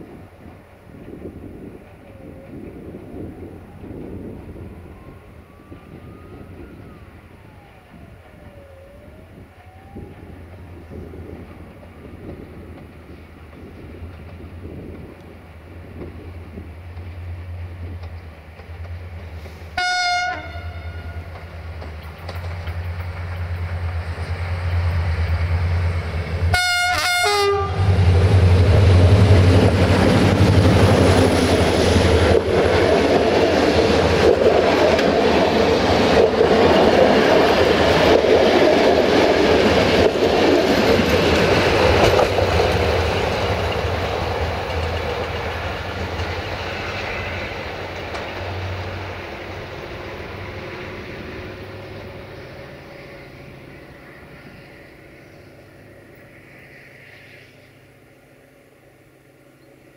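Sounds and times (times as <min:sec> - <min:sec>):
locomotive engine rumbling: 0:00.1 - 0:59.9
locomotive horn blasts: 0:19.8 - 0:21.4, 0:26.5 - 0:28.0
train coaches clattering over rails: 0:21.2 - 0:26.4, 0:28.6 - 0:52.1.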